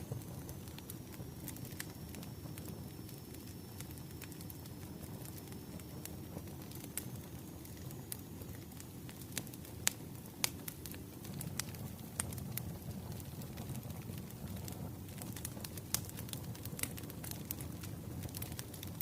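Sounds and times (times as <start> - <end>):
burning wood crackling and popping: 0.0 - 19.0
low rumble of flames: 0.0 - 19.0.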